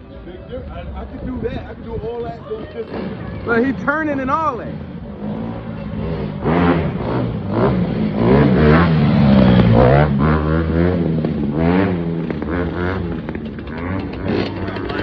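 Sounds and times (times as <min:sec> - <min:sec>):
dirt bike engine revving: 0:04.6 - 0:15.0.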